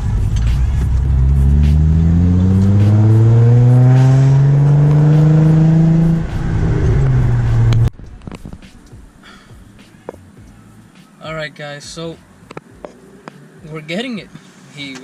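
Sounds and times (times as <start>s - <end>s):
car engine accelerating: 0.0s - 8.2s.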